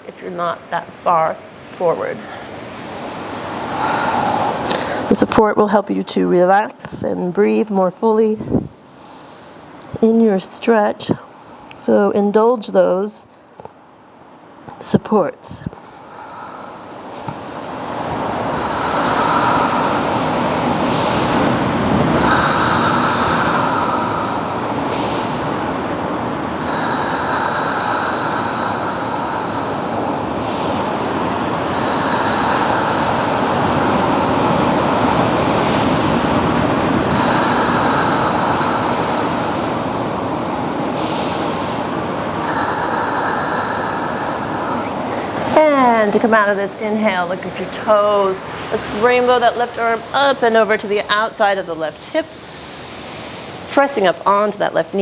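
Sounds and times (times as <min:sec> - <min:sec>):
ocean surf breaking: 0:02.4 - 0:05.2, 0:15.8 - 0:54.2.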